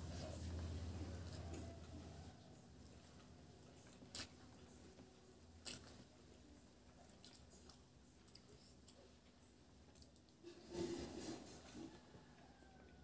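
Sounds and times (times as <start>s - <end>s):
person chewing food: 1.1s - 5.0s, 5.6s - 6.2s, 6.8s - 10.4s.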